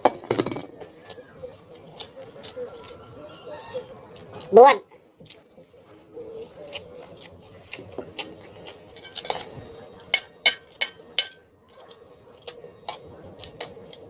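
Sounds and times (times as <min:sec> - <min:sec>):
utensils clinking against a dish: 0:08.2 - 0:14.0.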